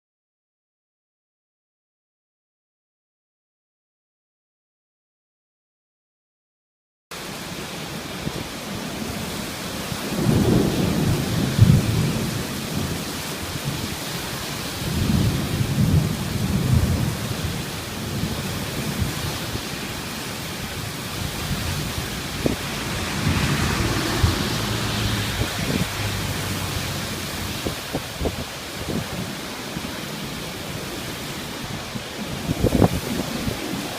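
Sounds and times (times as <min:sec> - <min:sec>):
heavy rain hissing: 0:07.2 - 0:33.9
rolling thunder rumbles: 0:08.8 - 0:33.9.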